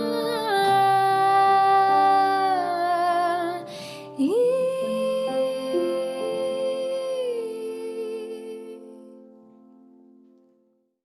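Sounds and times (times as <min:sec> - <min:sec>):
person singing long notes: 0:00.0 - 0:09.1
soft sustained accompaniment: 0:00.0 - 0:10.7
singer breathing in: 0:03.7 - 0:04.2.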